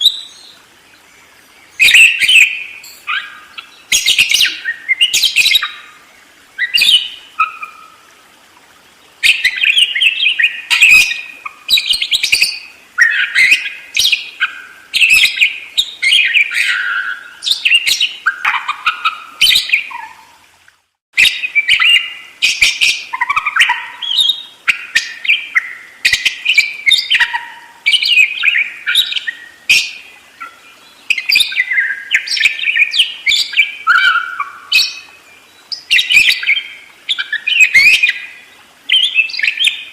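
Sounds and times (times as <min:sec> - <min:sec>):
budgerigar chattering and warbling: 0:18.3 - 0:20.2.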